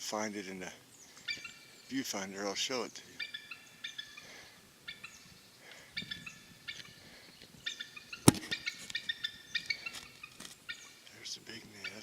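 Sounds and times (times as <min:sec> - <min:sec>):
eagle chattering alarm calls: 0:03.2 - 0:05.3, 0:07.6 - 0:11.0, 0:11.8 - 0:12.0
sharp click: 0:08.3 - 0:08.6.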